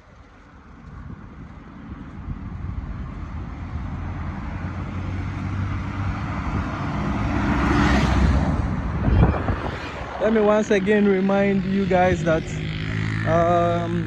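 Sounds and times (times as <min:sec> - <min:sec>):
vehicle engine hum: 0:00.0 - 0:14.0.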